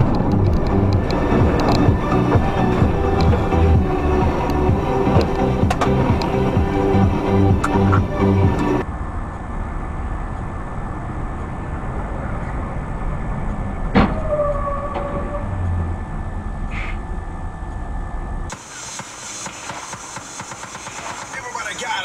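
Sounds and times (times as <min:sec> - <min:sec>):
vehicle engine and road noise: 0:00.0 - 0:22.0
sharp knock: 0:18.9 - 0:21.4.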